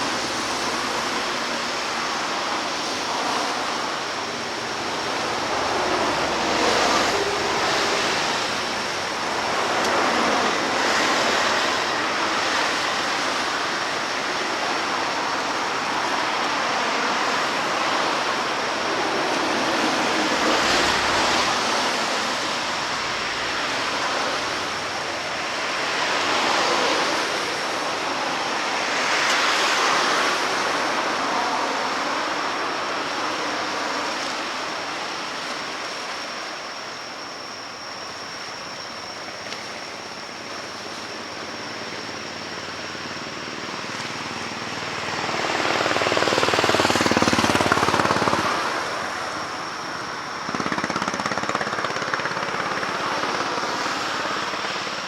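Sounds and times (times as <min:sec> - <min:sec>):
waves washing in: 0:00.0 - 0:55.0.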